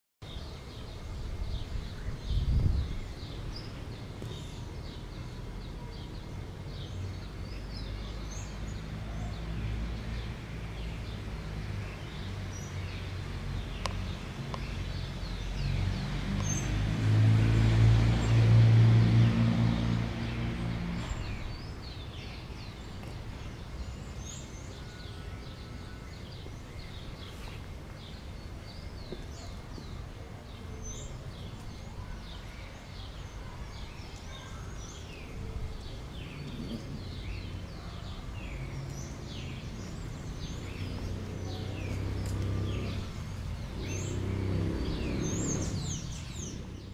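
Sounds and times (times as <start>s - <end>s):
outdoor background noise: 0.2s - 46.9s
birds chirping: 19.2s - 46.9s.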